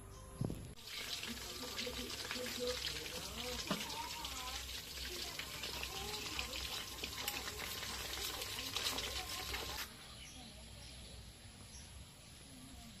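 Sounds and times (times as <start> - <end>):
faint bird chirps: 9.9 - 13.0.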